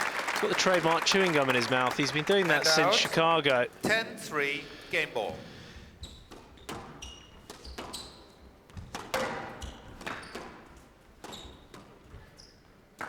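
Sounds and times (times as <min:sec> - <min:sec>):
court shoes squeaking: 0:01.1 - 0:13.0
squash ball hitting rackets and walls: 0:05.3 - 0:13.0.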